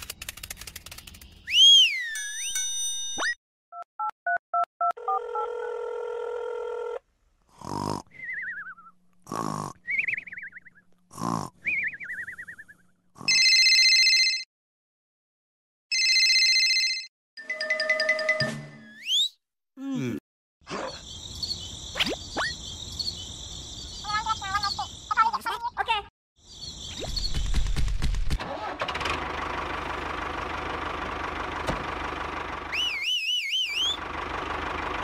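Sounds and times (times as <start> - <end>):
whistle glide: 1.4 - 3.3, 32.7 - 34.0
falling warbling whistle: 1.5 - 3.3, 32.7 - 34.0
comic snores: 7.5 - 8.3, 9.2 - 9.9, 11.1 - 11.7.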